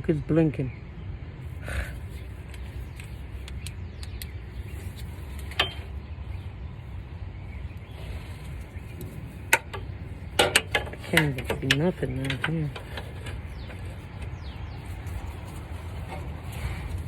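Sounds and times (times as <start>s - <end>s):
steady low rumble: 0.0s - 17.0s
hand tools knocking on metal: 9.5s - 14.4s.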